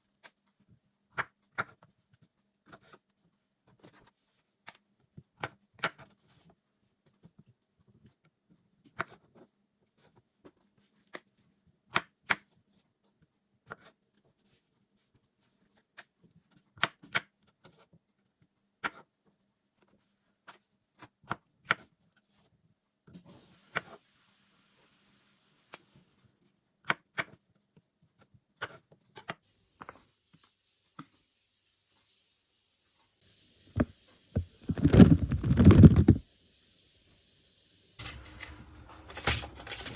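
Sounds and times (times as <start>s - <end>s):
small objects clicking and knocking: 33.8s - 36.2s, 38.0s - 39.9s.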